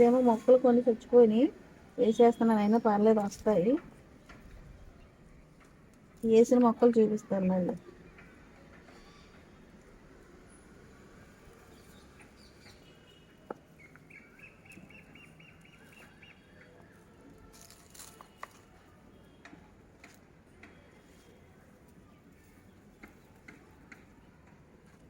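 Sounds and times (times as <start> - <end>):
bird chirping: 11.6 - 16.9.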